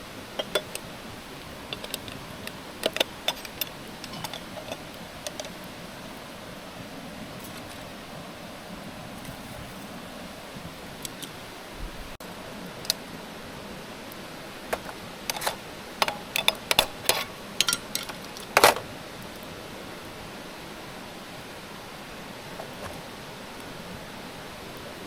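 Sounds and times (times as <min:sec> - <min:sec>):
low hiss: 0:00.0 - 0:25.0
sharp clicks and light knocks: 0:00.4 - 0:06.2, 0:14.7 - 0:18.8.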